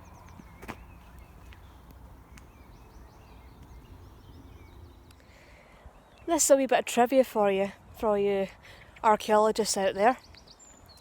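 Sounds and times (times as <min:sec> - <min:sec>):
songbird chirping: 0:00.0 - 0:06.7, 0:09.7 - 0:11.0.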